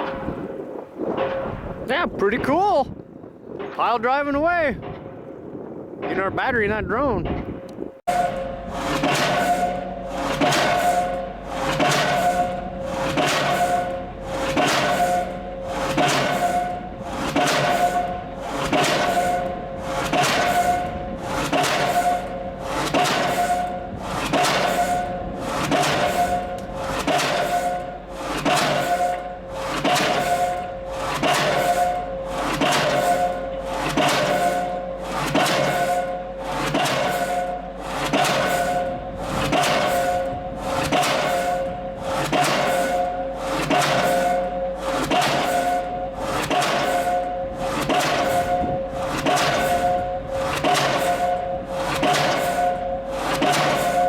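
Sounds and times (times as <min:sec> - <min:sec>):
pile driver hammering steel: 0:07.2 - 0:54.0.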